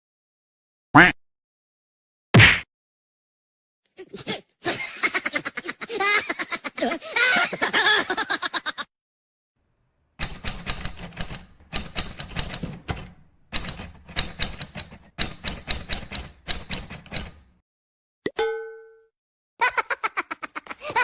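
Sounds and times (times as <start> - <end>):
keyboard typing clicks: 10.2 - 17.5.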